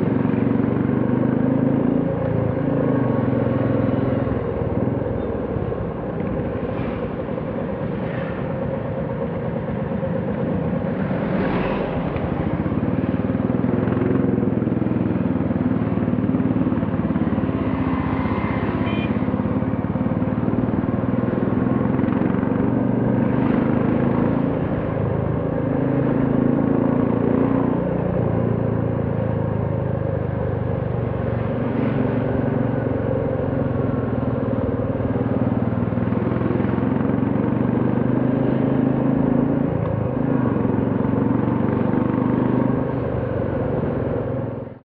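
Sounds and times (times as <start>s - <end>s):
motorcycle engine running: 0.0s - 44.8s
road noise: 0.0s - 44.9s.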